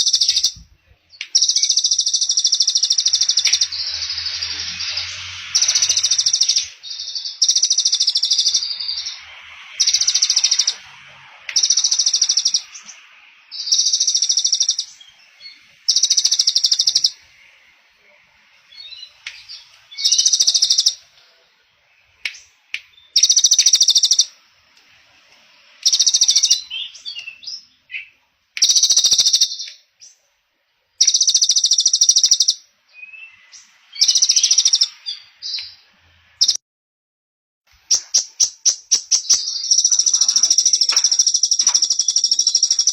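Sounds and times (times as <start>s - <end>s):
songbird rattling trill: 0.0s - 0.6s, 1.3s - 4.5s, 5.6s - 9.1s, 9.8s - 10.8s, 11.5s - 12.8s, 13.6s - 15.0s, 15.9s - 17.2s, 20.0s - 21.0s, 23.1s - 24.3s, 25.8s - 27.4s, 28.6s - 29.7s, 31.0s - 32.6s, 34.0s - 34.9s, 37.9s - 42.9s
soft bird chirps: 0.0s - 30.3s, 31.0s - 36.6s, 37.8s - 42.9s.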